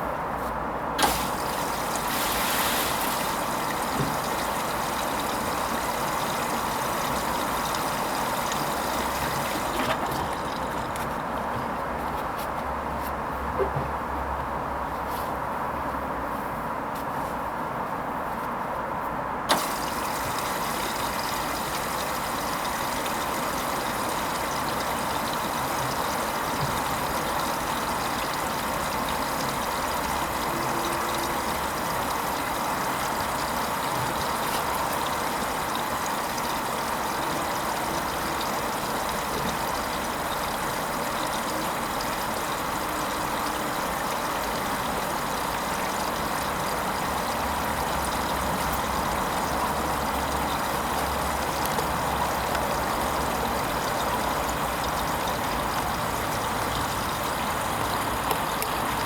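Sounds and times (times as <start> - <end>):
washing machine click: 1.0 - 11.3
water rushing into machine: 1.0 - 12.1, 19.5 - 59.0.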